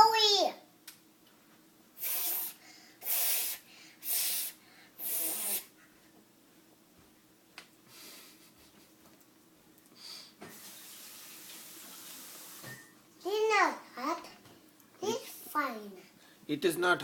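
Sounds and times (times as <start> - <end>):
person blowing on food: 2.0 - 5.8.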